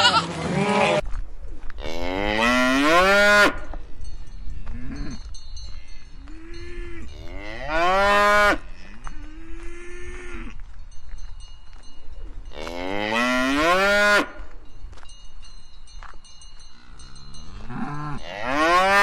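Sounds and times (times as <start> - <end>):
cattle mooing: 1.8 - 3.7, 6.3 - 10.6, 12.6 - 14.4, 17.5 - 19.0.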